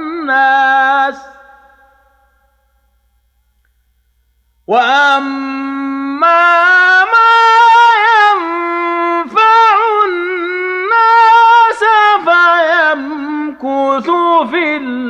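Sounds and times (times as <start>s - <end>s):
man reciting melodically: 0.0s - 2.0s, 4.6s - 15.0s.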